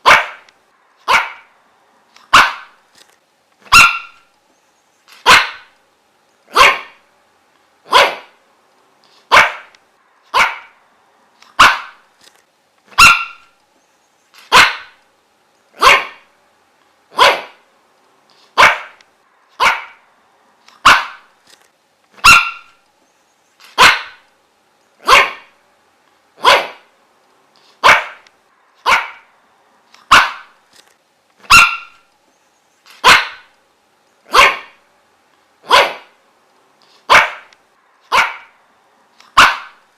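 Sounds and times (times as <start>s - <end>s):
dog barking: 0.0s - 1.5s, 2.3s - 2.8s, 3.7s - 4.3s, 5.2s - 5.7s, 6.5s - 7.0s, 7.9s - 8.4s, 9.3s - 9.7s, 10.3s - 10.8s, 11.6s - 12.0s, 12.9s - 13.5s, 14.5s - 15.0s, 15.8s - 16.3s, 17.1s - 17.6s, 18.6s - 19.0s, 19.6s - 20.0s, 20.8s - 21.3s, 22.2s - 22.8s, 23.7s - 24.2s, 25.0s - 25.6s, 26.4s - 26.9s, 27.8s - 28.2s, 28.8s - 29.3s, 30.0s - 30.6s, 31.4s - 32.0s, 33.0s - 33.5s, 34.3s - 34.8s, 35.6s - 36.2s, 37.1s - 37.5s, 38.1s - 38.6s, 39.3s - 39.8s.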